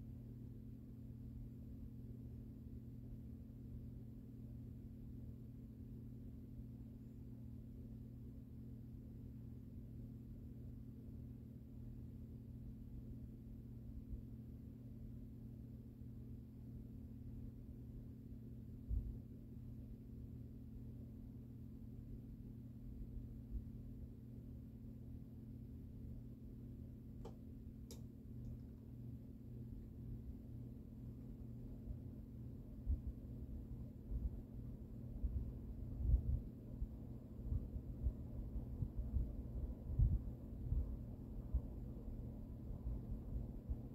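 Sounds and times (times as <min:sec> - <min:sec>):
ceiling fan motor hum: 0:00.0 - 0:43.9.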